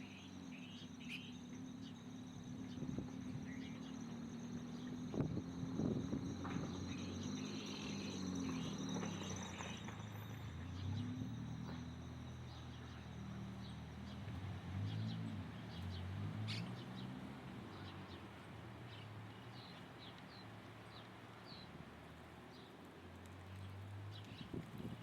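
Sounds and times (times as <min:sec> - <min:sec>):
birds chirping: 0:00.0 - 0:02.0, 0:02.6 - 0:05.2, 0:06.3 - 0:11.8
high insect drone: 0:00.0 - 0:15.1.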